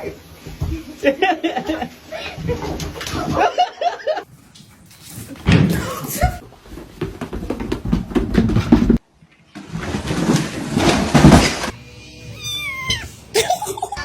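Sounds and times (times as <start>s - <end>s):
cat meowing: 12.0s - 13.3s.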